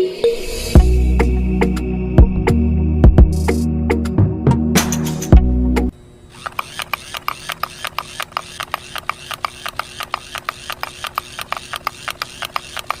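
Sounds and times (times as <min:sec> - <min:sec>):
small mechanism clicking rapidly: 0:06.3 - 0:13.0.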